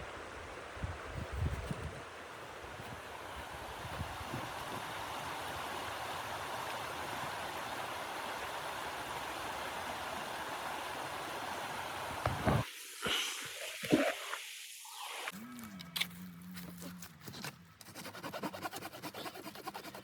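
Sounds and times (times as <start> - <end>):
rushing wind: 0.0 - 12.8.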